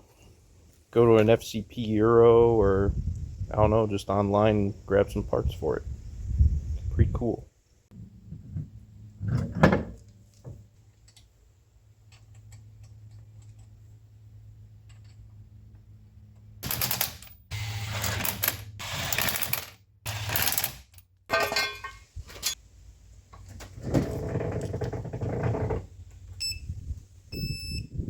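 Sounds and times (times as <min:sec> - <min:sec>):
power tool bursts: 0:16.6 - 0:20.9.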